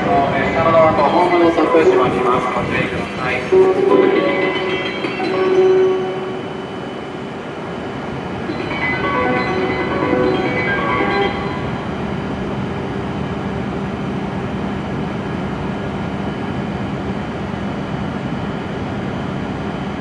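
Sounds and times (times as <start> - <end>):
platform departure melody: 0.0 - 14.4
train humming at platform: 0.0 - 20.0.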